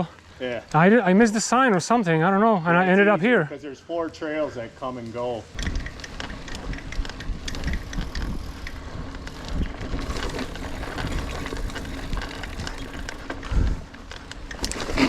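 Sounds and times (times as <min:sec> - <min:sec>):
bike rattles and clicks: 0:04.9 - 0:15.0
bike tyres rumbling over dirt: 0:05.1 - 0:15.0.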